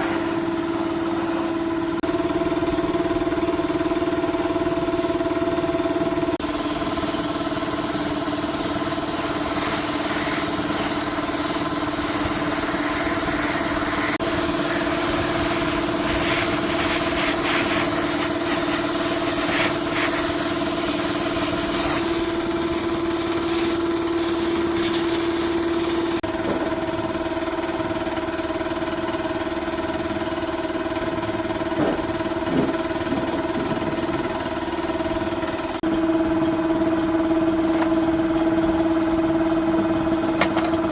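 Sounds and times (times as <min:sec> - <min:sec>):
small motor humming: 0:05.9 - 0:26.2.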